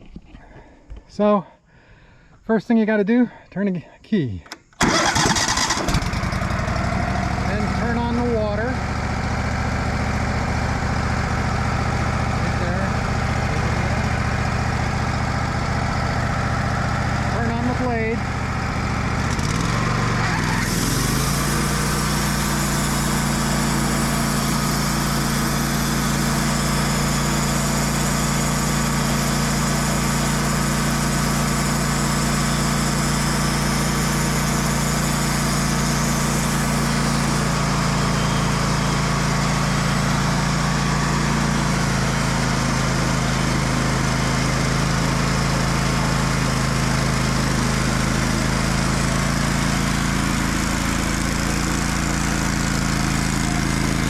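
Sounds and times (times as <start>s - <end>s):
sawmill engine droning: 4.8s - 54.0s
saw blade cutting log: 19.4s - 38.6s.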